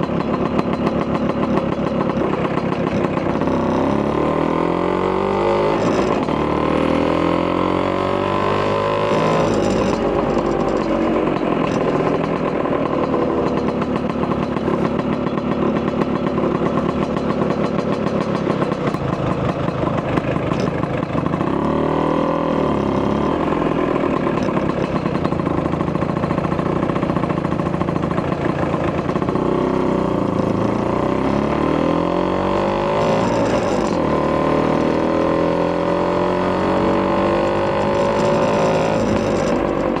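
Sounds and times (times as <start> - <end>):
scooter two-stroke engine: 0.0 - 40.0.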